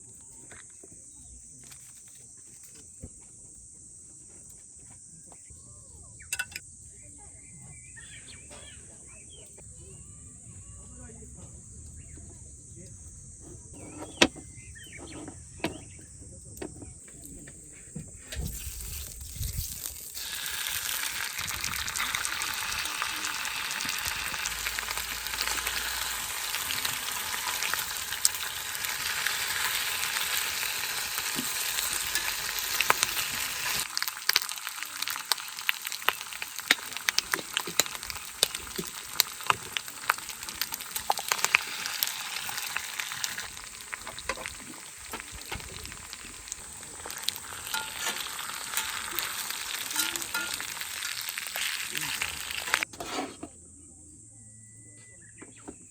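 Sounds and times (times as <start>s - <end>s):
oil popping and spattering: 18.3s - 52.9s
food sizzling in a frying pan: 18.4s - 52.9s.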